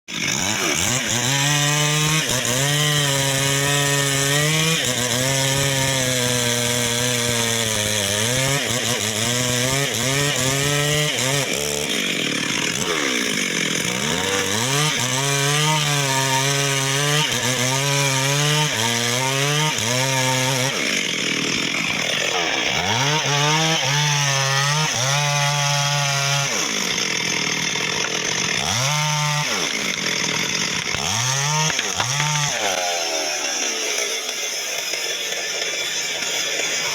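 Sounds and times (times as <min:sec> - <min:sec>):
chainsaw cutting wood: 0:00.1 - 0:36.9.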